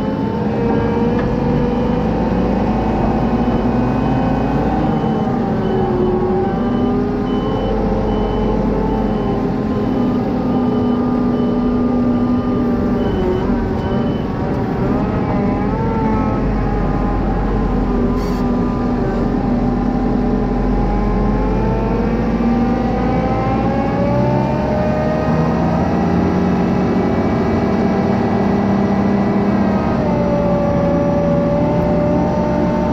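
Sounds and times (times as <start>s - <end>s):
heavy machinery engine running: 0.0s - 32.9s
reversing beeps: 0.1s - 15.2s.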